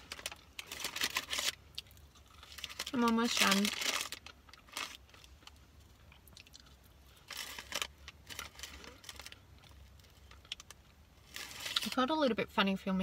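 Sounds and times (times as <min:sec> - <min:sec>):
chewing crunchy fries: 0:00.0 - 0:12.0.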